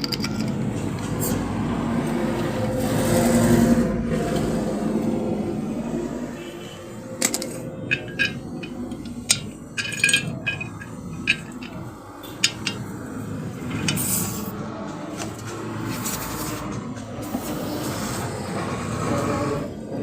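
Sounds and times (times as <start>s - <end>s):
metal stove parts clinking: 0.0s - 1.0s, 7.1s - 14.4s
metal parts scraping: 0.0s - 1.5s, 6.3s - 17.8s.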